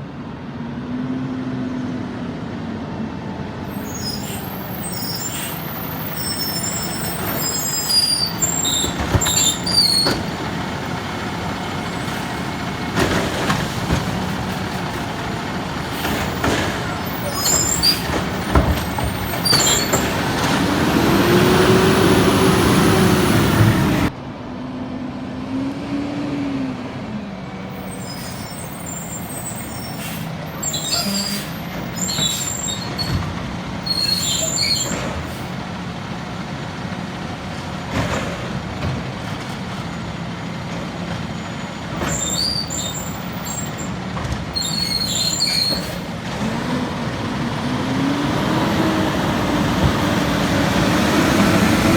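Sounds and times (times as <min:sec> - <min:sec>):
truck diesel engine running: 0:03.6 - 0:24.1, 0:31.6 - 0:51.9
high squeals and hisses: 0:03.7 - 0:10.4, 0:15.8 - 0:20.3, 0:27.8 - 0:33.2, 0:33.9 - 0:35.5, 0:42.1 - 0:44.0, 0:44.6 - 0:46.1.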